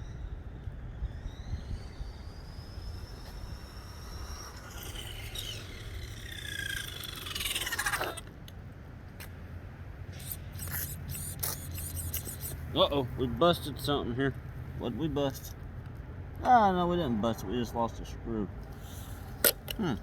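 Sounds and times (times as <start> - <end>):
electric toy truck motor whining: 0.0 - 8.5, 10.1 - 12.6.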